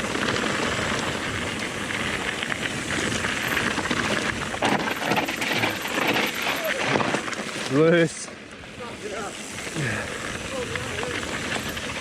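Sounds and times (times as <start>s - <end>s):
bike tyres crunching on gravel: 0.0s - 12.0s
bike knocks and rattles: 2.4s - 7.8s.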